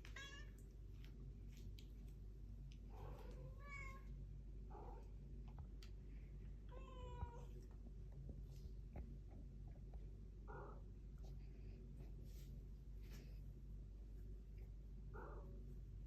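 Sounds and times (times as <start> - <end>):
cat meowing: 0.1 - 0.6.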